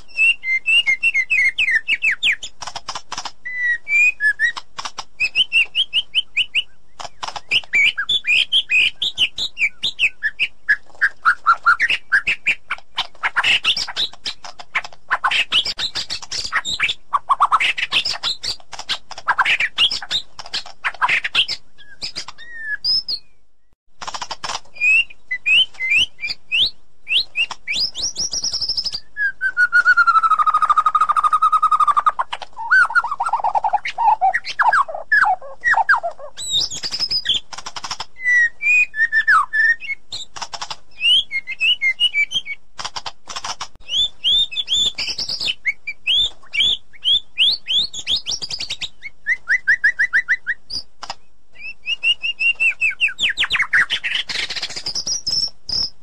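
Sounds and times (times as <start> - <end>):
bird singing whistles and trills: 0.0 - 2.6, 3.4 - 23.7, 24.8 - 37.4, 38.2 - 40.3, 40.9 - 42.6, 43.8 - 50.9, 51.6 - 56.0.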